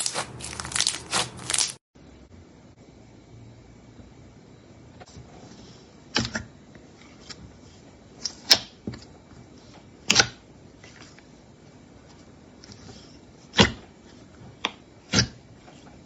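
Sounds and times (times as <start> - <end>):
slime squished by hand: 0.0 - 1.8.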